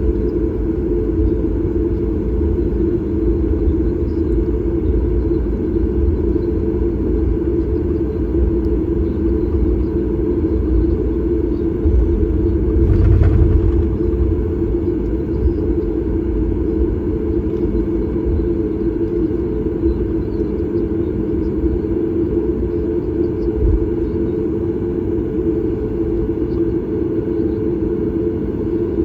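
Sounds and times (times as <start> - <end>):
airplane cabin engine rumble: 0.0 - 29.0.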